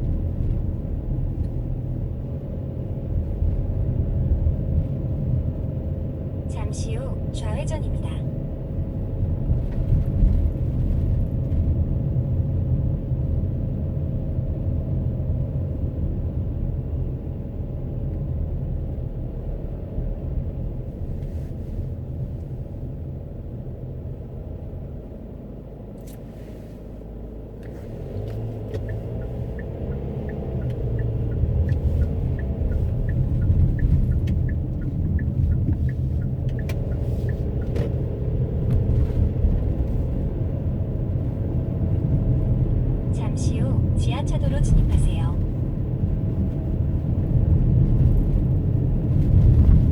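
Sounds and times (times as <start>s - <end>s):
road and tyre rumble: 0.0s - 49.9s
light ticking: 28.3s - 38.2s.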